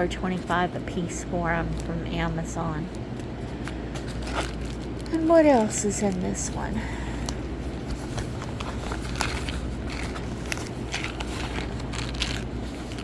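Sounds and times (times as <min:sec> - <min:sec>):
steady low hum: 0:00.0 - 0:13.0
packaging rustling and crinkling: 0:03.1 - 0:06.6, 0:07.2 - 0:13.0.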